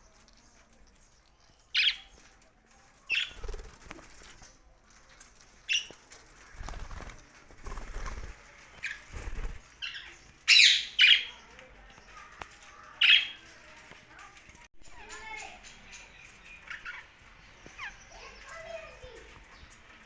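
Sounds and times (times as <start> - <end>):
wing flaps: 3.1 - 4.6, 5.7 - 9.7.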